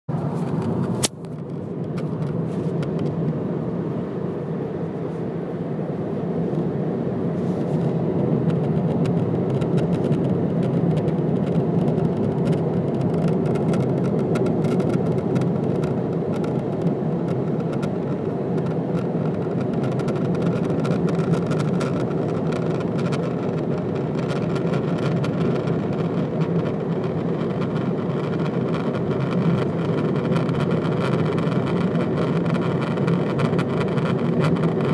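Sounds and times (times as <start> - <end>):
car running noise: 0.1 - 34.9
sharp click: 0.4 - 3.0.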